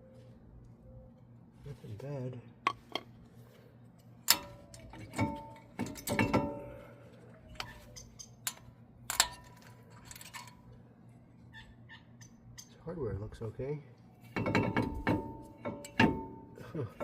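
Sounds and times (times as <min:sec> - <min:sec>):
metal brake parts clinking: 0:04.3 - 0:06.8, 0:07.6 - 0:10.7, 0:14.3 - 0:16.6.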